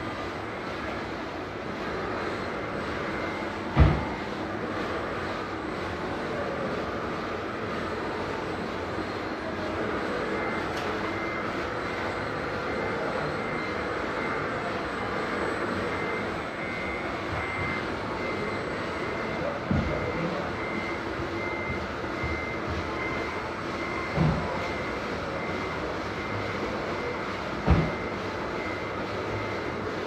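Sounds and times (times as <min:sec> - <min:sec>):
faint beeper: 0:09.6 - 0:29.9.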